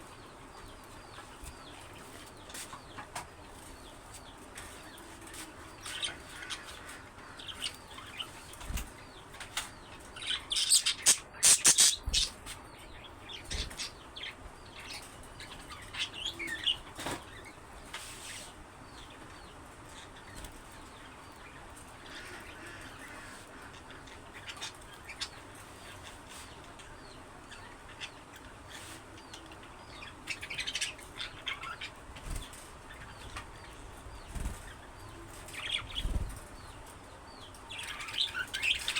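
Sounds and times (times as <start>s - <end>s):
budgerigars chirping: 10.2s - 12.4s
wings flapping: 34.3s - 34.8s, 35.5s - 36.5s.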